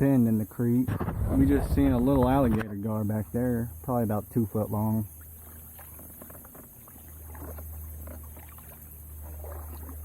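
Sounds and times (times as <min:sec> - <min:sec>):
faint water splashes and drips: 0:00.0 - 0:10.0
steady low rumble: 0:00.8 - 0:04.1.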